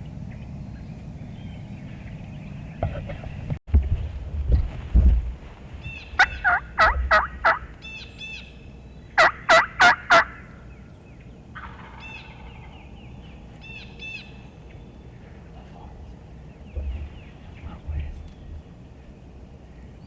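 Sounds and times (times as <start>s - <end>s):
songbird chirps: 5.4s - 20.0s
wild turkey yelping: 5.8s - 8.5s, 9.2s - 10.8s, 11.5s - 12.8s.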